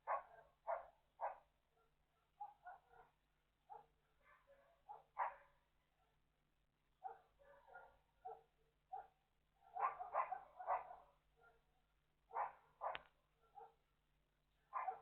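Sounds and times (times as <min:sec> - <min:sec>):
dog barking: 0:00.0 - 0:06.2, 0:07.0 - 0:11.7, 0:12.3 - 0:13.9, 0:14.7 - 0:15.0.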